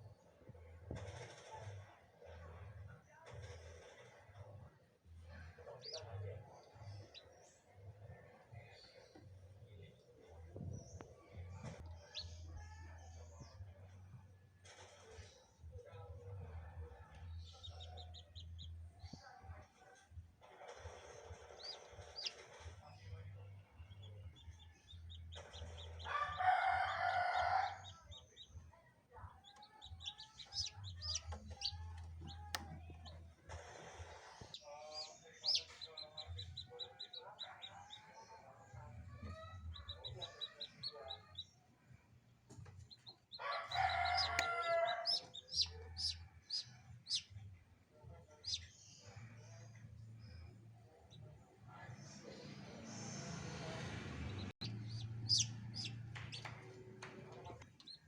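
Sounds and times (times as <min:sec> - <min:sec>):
chicks peeping: 0:05.6 - 0:07.6, 0:17.4 - 0:18.9, 0:20.4 - 0:28.6, 0:29.2 - 0:41.6, 0:42.5 - 0:47.4, 0:48.3 - 0:49.7, 0:54.3 - 0:58.0
rooster crowing: 0:26.0 - 0:27.8, 0:43.4 - 0:46.2.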